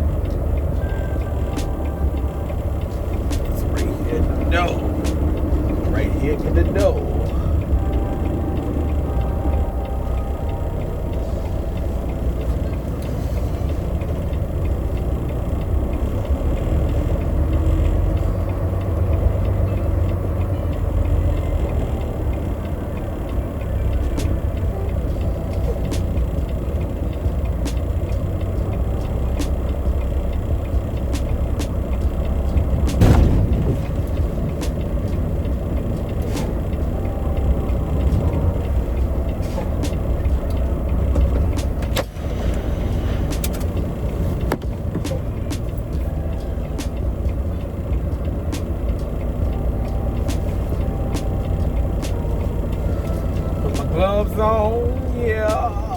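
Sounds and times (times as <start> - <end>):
truck engine running: 0.0 - 55.9
loud thump: 32.9 - 34.1.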